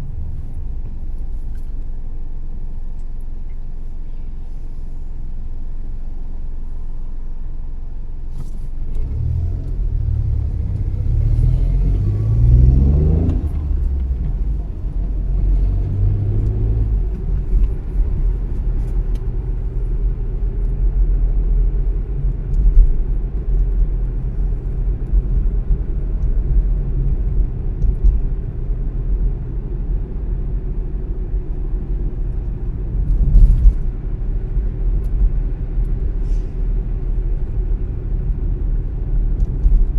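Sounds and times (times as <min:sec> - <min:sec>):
car engine accelerating: 0:08.3 - 0:39.9.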